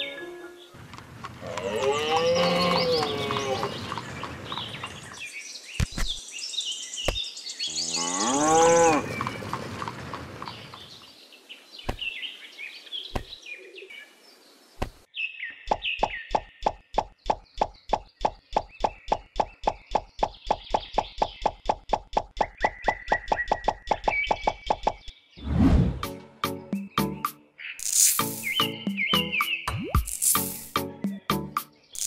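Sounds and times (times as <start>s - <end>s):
cow mooing: 1.4s - 3.8s, 7.9s - 9.2s
small stones clicking: 27.8s - 28.5s.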